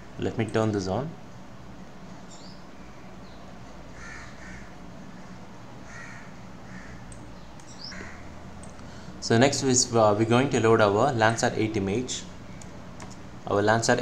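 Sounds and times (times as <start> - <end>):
low steady hum: 0.0 - 14.0
faint crow-like caws: 3.9 - 7.2, 7.8 - 9.1.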